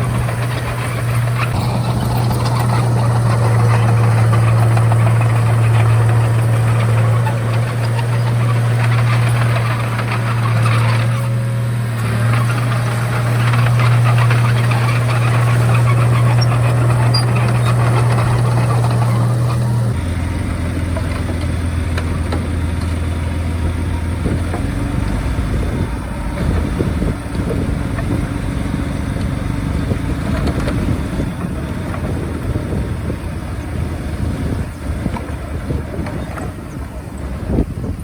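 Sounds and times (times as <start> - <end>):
machine clatter: 0.0 - 20.0
bulldozer diesel engine running: 0.0 - 38.0.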